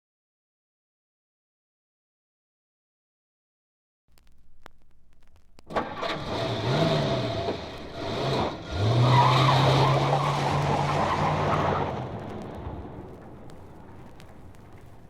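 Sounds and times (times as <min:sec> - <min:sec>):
vehicle engine revving: 0:05.7 - 0:14.2.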